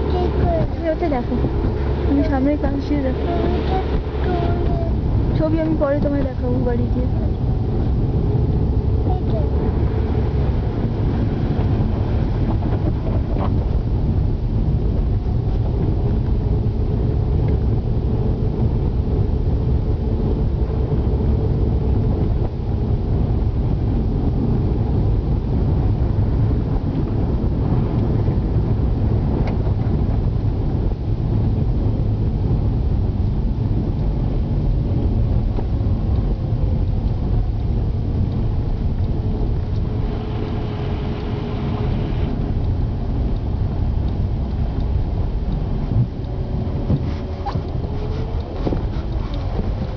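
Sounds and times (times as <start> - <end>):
faint hum drifting in pitch: 0.0 - 23.3, 38.2 - 49.9
engine and tyres rumbling: 0.0 - 49.9.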